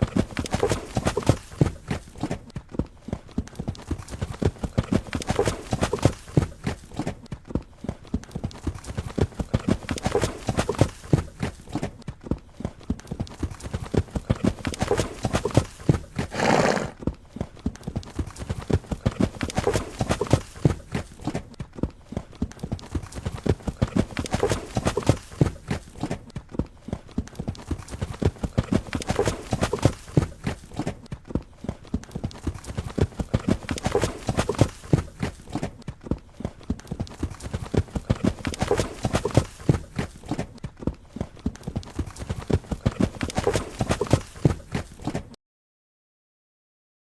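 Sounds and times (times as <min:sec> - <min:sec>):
horse hooves galloping: 0:00.0 - 0:45.4
horse whinny: 0:16.3 - 0:17.0.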